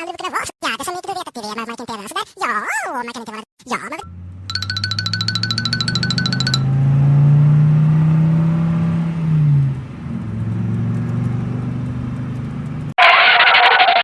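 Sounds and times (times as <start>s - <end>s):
vehicle engine running: 4.1s - 7.3s, 9.7s - 12.9s.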